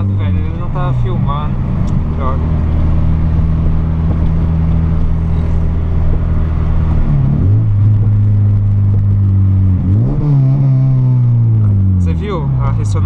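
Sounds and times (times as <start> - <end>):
car exhaust drone: 0.0 - 13.0.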